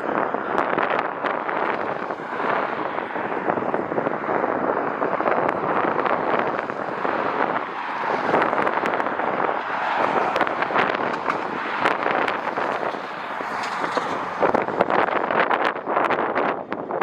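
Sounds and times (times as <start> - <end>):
jet engine roar: 0.0 - 16.6
wind on microphone: 0.0 - 17.0.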